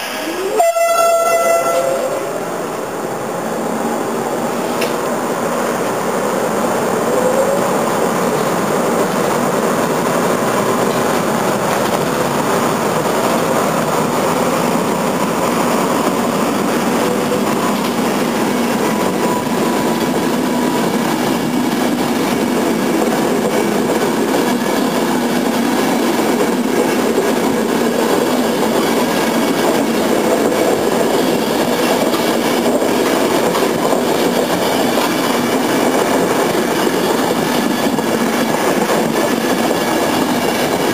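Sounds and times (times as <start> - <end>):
train wheels running on rails: 0.0 - 40.9.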